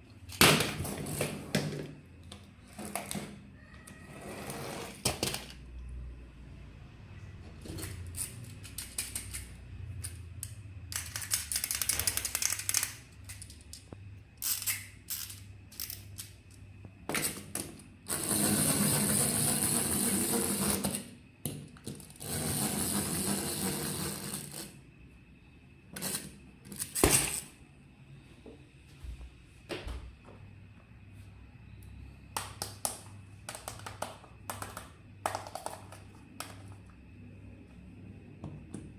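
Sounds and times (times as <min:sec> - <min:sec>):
plastic toy clicks: 0:08.2 - 0:13.8.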